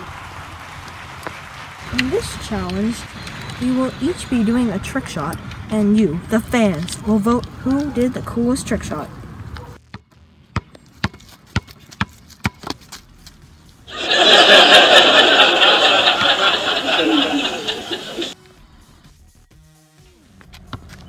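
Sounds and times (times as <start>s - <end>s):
basketball bouncing on asphalt: 9.4s - 13.1s.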